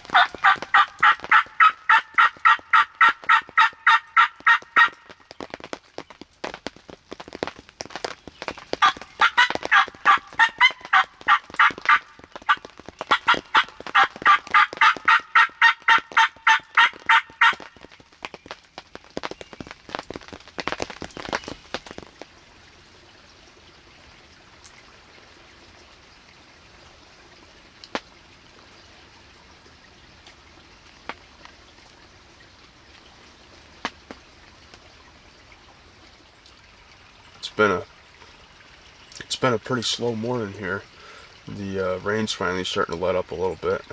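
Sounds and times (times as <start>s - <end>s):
turkey call yelps: 0.0s - 5.1s, 8.8s - 17.8s
steady rain: 0.0s - 43.9s.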